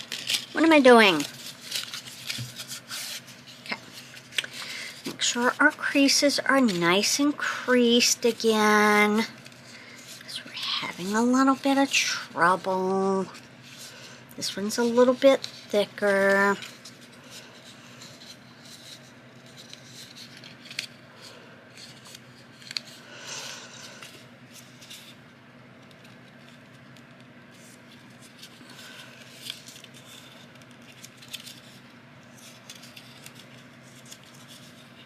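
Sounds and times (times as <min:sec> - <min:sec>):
paper rustling and crinkling: 0:00.0 - 0:35.0.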